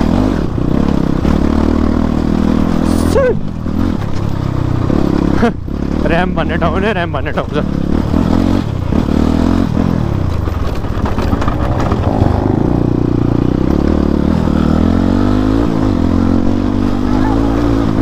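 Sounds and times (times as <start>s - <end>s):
clatter from motorcycle: 0.0s - 2.8s, 3.5s - 6.2s, 7.3s - 14.5s
motorcycle engine revving: 0.0s - 18.0s.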